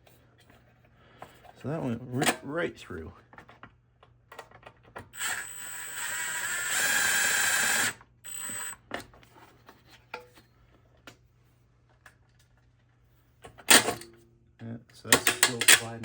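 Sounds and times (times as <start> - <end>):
cordless drill driving a screw: 5.2 - 8.8.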